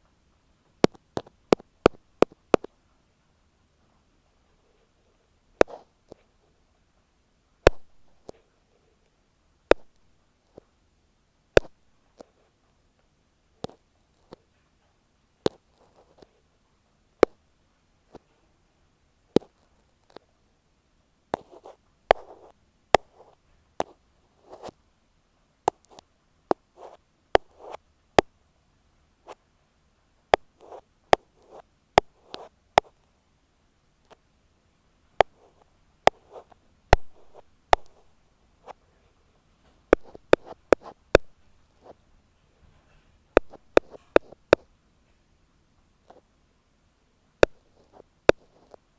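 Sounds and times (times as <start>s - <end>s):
ear pick tapping on microphone: 5.6s - 6.2s, 7.6s - 8.1s, 9.7s - 10.1s, 11.6s - 11.8s, 21.4s - 24.8s, 25.7s - 28.3s, 36.0s - 38.2s, 39.9s - 41.4s, 43.4s - 44.7s, 47.4s - 48.8s
soft scratchy rubs: 13.7s - 16.5s, 21.4s - 24.8s, 26.6s - 27.8s, 30.4s - 33.0s, 35.2s - 45.2s, 47.5s - 48.9s.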